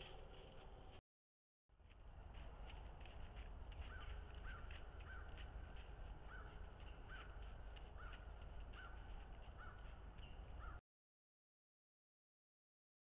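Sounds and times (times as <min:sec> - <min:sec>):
bird harsh calls: 0:03.8 - 0:10.8.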